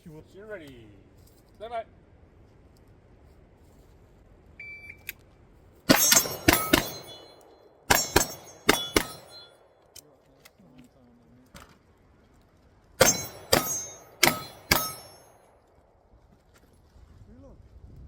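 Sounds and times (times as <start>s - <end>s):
steel targets ringing: 5.9s - 9.9s, 13.0s - 15.6s
pistol shots: 5.9s - 10.0s, 13.0s - 15.6s.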